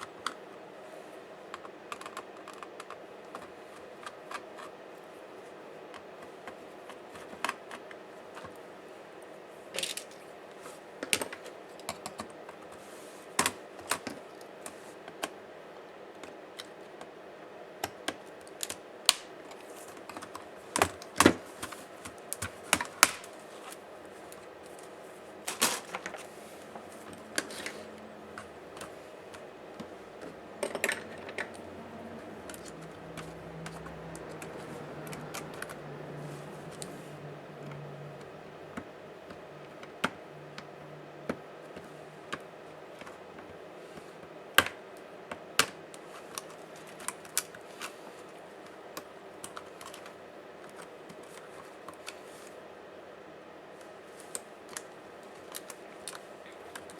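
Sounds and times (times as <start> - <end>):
laptop parts clicking and scraping: 19.5 - 43.6
faint low hum: 23.3 - 45.4.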